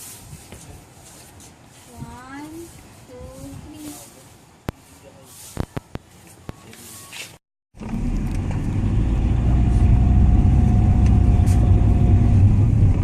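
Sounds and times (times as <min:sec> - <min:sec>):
vehicle engine rumble: 0:07.8 - 0:13.0.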